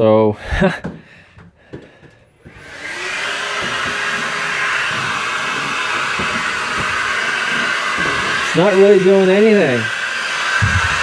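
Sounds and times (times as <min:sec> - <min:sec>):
handheld vacuum running: 0:02.4 - 0:11.0.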